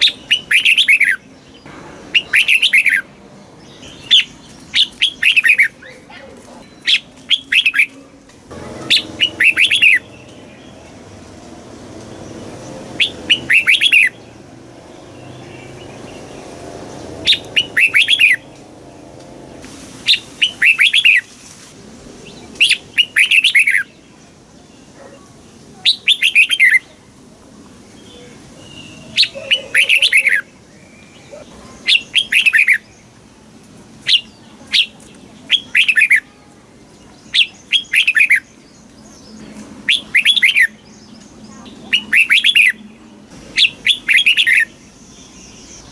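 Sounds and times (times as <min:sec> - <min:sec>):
bird chirping: 0:00.0 - 0:21.3, 0:28.0 - 0:33.2, 0:36.9 - 0:45.9.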